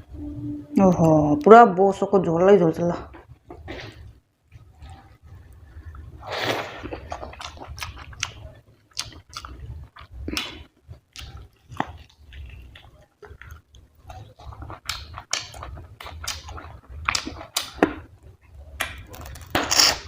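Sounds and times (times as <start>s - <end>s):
loud slurp: 6.2s - 7.3s
wet chewing and lip-smacking: 6.8s - 18.1s.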